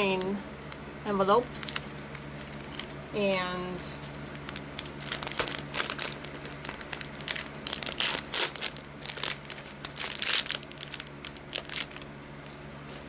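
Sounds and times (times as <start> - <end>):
packaging crinkling and rustling: 1.5 - 3.1, 3.8 - 12.2.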